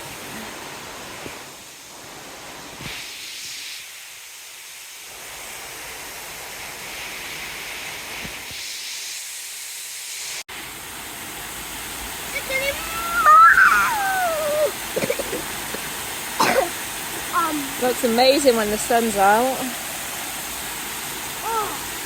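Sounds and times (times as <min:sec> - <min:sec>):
waterfall rushing: 0:10.5 - 0:22.0.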